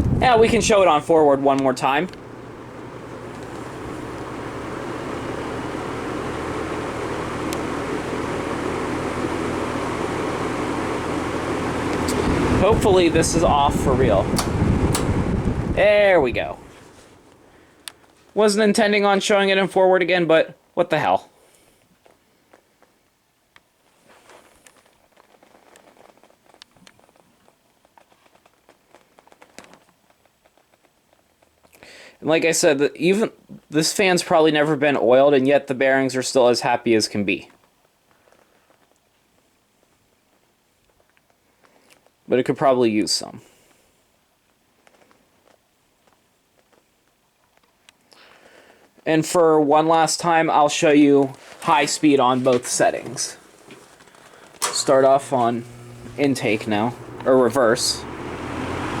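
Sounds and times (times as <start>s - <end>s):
box fan air rushing: 0.0s - 17.5s, 51.3s - 59.0s
fan motor hum: 0.0s - 18.2s, 50.3s - 59.0s.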